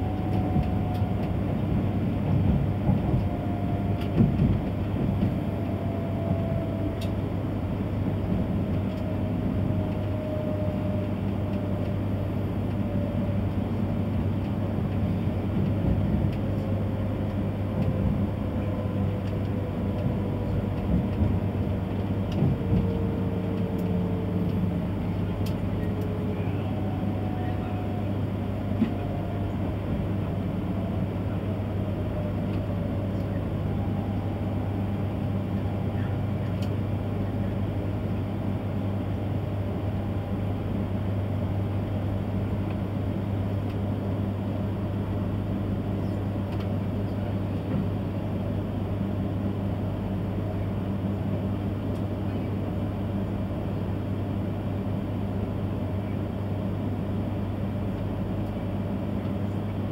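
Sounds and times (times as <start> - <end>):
train cabin low hum: 0.0 - 59.9
click: 0.3 - 1.4, 7.0 - 7.2, 19.2 - 20.1, 23.8 - 24.6, 25.4 - 26.0, 32.5 - 33.4, 36.4 - 36.8, 46.5 - 46.8.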